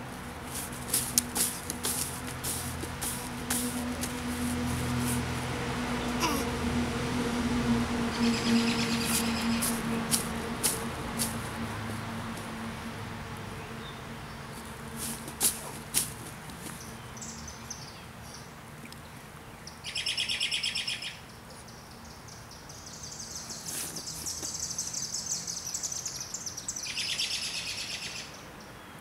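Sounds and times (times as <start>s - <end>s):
songbirds singing: 8.1s - 11.3s, 13.5s - 29.0s.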